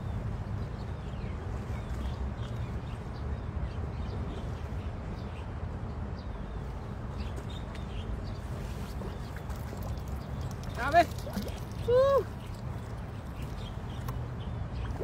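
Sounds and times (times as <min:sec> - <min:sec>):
birds chirping: 0:06.2 - 0:15.0.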